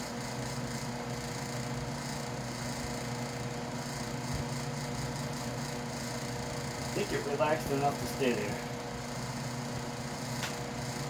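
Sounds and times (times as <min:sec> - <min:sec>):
electric fan running: 0:00.0 - 0:11.0.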